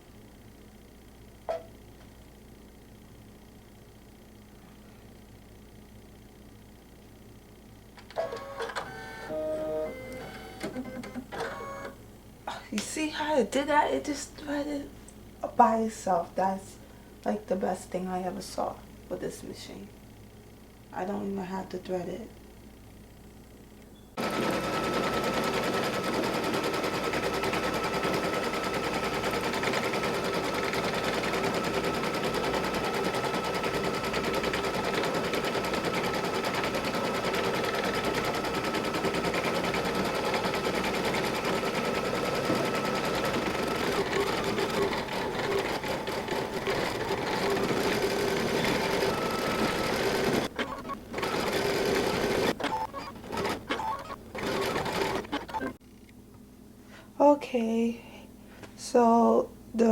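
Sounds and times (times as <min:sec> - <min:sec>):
embroidery machine needle rattle: 0:24.2 - 0:55.7.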